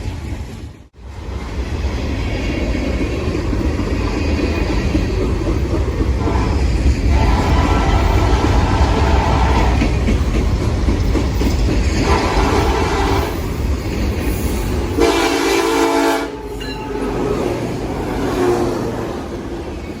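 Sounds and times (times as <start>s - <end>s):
freight train rumbling past: 0.0s - 20.0s
locomotive horn blast: 12.0s - 13.4s, 15.0s - 17.4s, 18.0s - 19.1s.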